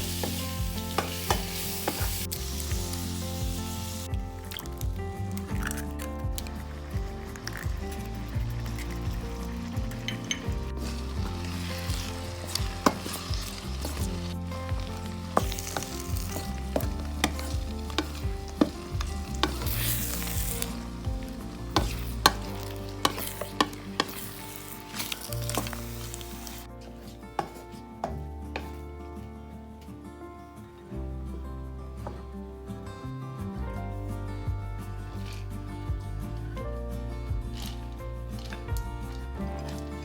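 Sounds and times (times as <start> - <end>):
fried rice sizzling in skillet: 0.0 - 4.1, 10.3 - 26.7
spatula scraping pan: 10.8 - 26.6
utensil clicking on pan: 15.2 - 21.0, 21.7 - 26.2.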